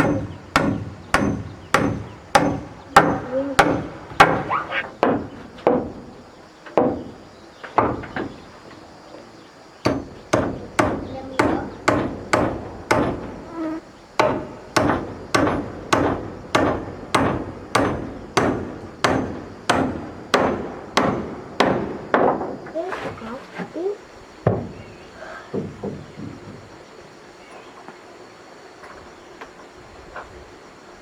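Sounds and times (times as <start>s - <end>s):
hammer blows on wood: 0.0s - 6.1s, 9.8s - 22.8s.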